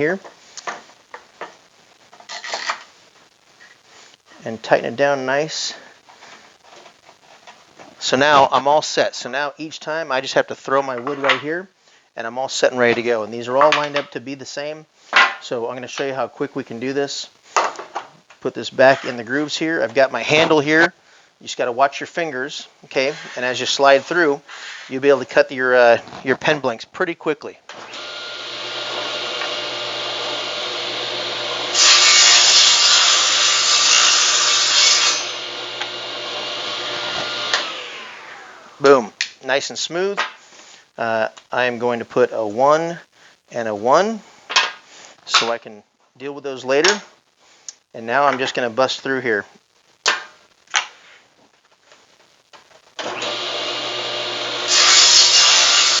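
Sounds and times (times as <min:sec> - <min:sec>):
table saw cutting wood: 0:27.8 - 0:38.8, 0:53.0 - 0:56.0.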